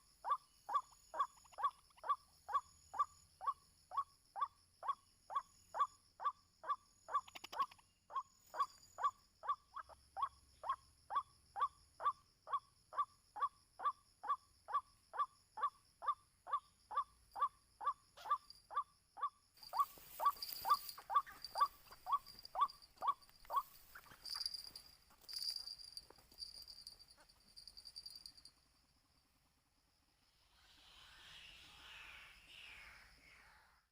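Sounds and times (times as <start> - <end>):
rough hiss-like noise: 30.1 - 33.7.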